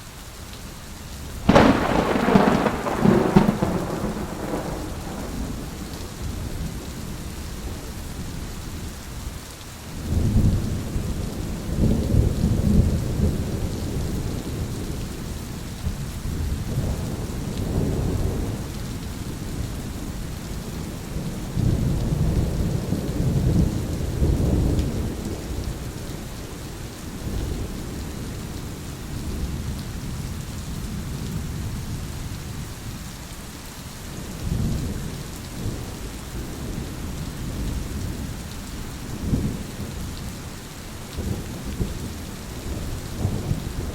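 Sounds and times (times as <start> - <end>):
steady rain falling: 0.0 - 43.9
thunder rumbling: 1.4 - 7.9, 41.1 - 43.9.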